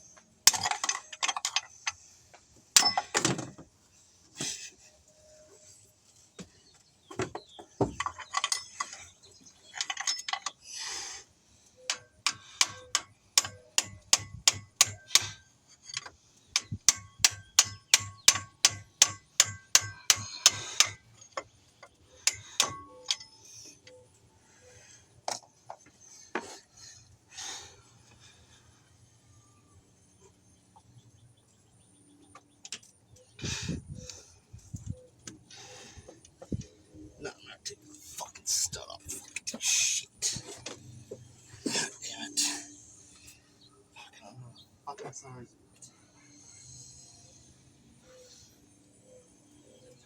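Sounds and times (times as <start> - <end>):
faint ringing: 2.8 - 3.6, 22.2 - 25.0.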